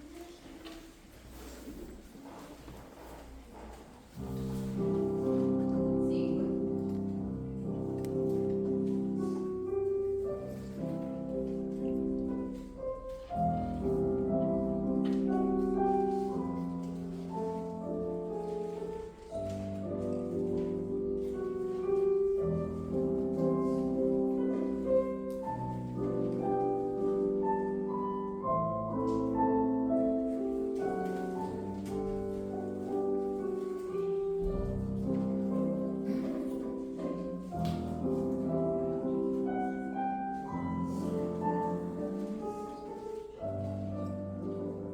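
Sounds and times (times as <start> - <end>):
classical piano music: 0.0 - 44.9.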